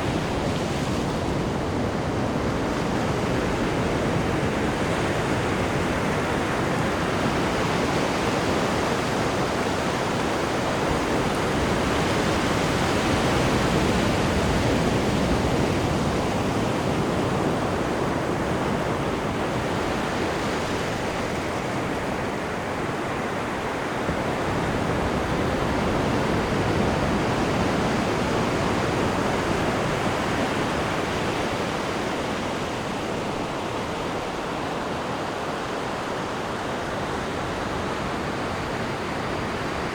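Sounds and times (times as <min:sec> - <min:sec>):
churning water rushing: 0:00.0 - 0:39.9.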